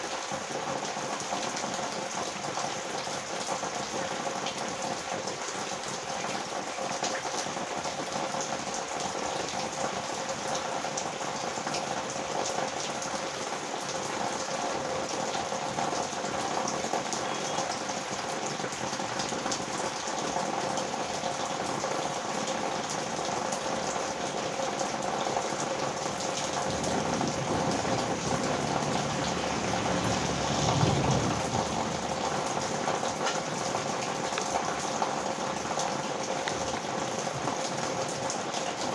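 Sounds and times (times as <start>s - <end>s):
heavy rain falling: 0.0s - 38.9s
low rumble: 26.6s - 32.8s.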